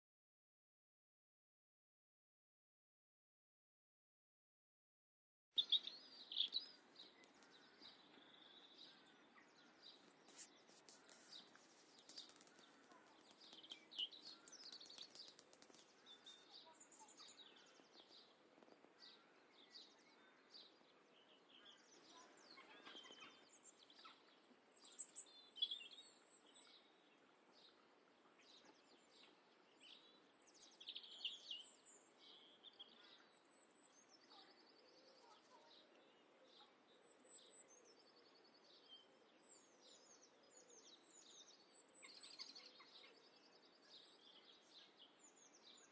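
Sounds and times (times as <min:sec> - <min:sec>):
low outdoor hiss: 0:05.6 - 0:41.9
birds chirping: 0:05.6 - 0:45.9.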